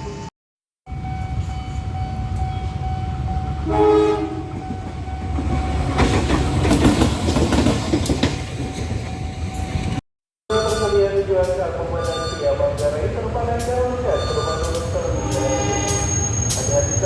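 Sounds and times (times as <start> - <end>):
train rumbling past: 0.9 - 17.0
train horn blast: 3.6 - 4.6, 14.2 - 16.2.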